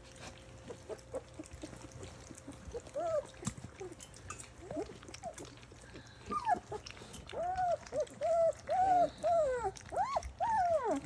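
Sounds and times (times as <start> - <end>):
dog whining: 2.5 - 4.0, 6.2 - 11.0.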